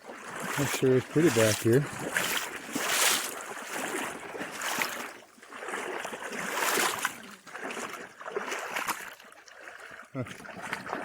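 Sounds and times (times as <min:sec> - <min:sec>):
footsteps through grass and brush: 0:00.4 - 0:05.0.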